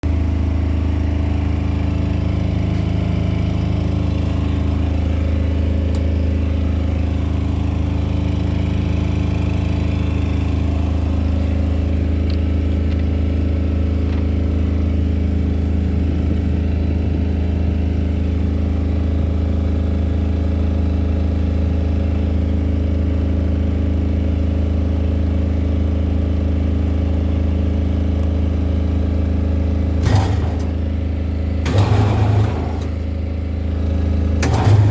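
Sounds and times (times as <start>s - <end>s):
machine motor humming: 30.0s - 30.9s, 31.6s - 33.2s, 34.4s - 34.9s.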